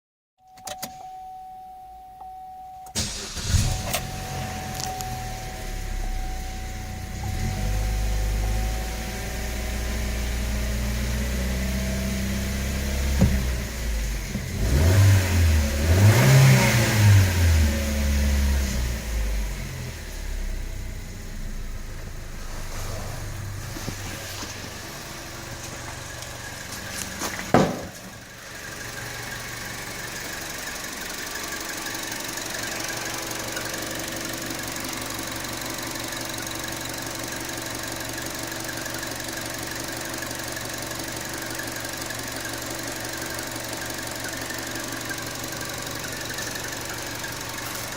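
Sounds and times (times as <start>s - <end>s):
high-pitched engine whine: 3.0s - 27.0s
car engine revving and idling: 3.0s - 47.9s.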